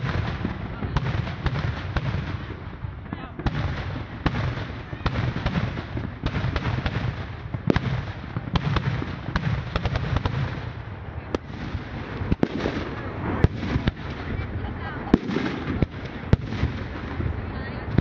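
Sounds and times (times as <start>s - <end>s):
fireworks bangs and pops: 0.0s - 18.0s.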